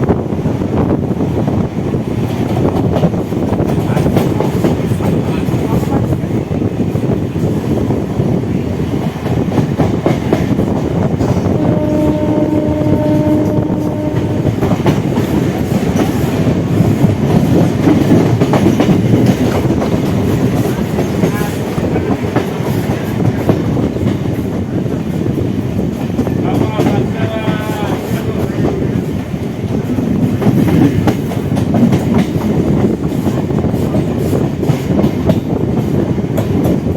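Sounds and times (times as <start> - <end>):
train rumble: 0.0 - 36.9
train horn blast: 11.4 - 15.0.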